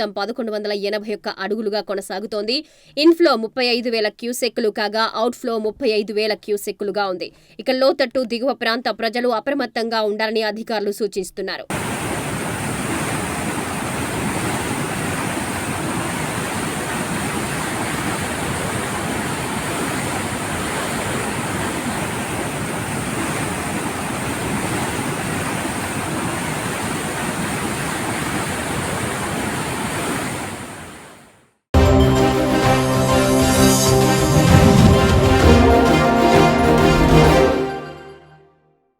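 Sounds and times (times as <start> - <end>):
floodwater rushing from spillway: 11.7 - 31.3.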